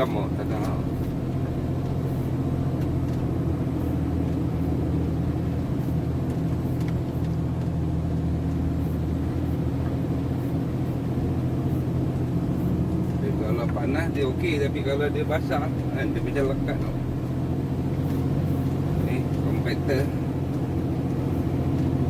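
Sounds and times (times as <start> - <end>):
truck diesel engine droning: 0.0 - 22.0.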